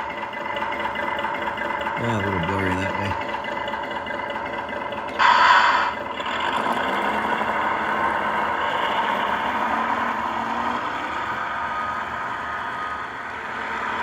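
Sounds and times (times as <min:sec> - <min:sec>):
model train motor whirring: 0:05.2 - 0:06.8.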